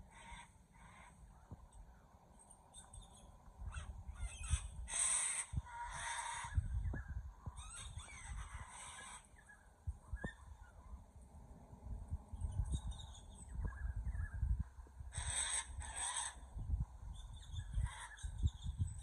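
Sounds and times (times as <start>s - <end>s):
birds giving harsh raspy calls: 0.0s - 1.5s, 2.8s - 10.8s, 15.0s - 19.0s.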